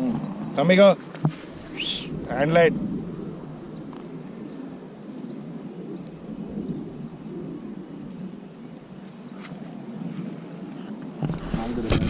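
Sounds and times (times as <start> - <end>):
low outdoor rumble: 1.1 - 9.4
small bird high rising call: 1.5 - 8.6.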